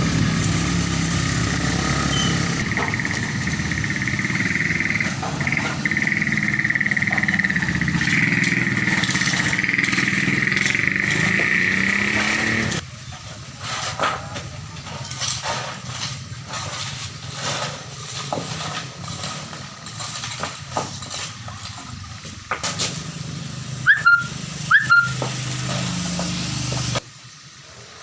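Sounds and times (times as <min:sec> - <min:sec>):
engine running steadily: 0:00.0 - 0:28.0
short rising chirps: 0:02.0 - 0:03.1
knocks clinks and scrapes: 0:13.3 - 0:22.0.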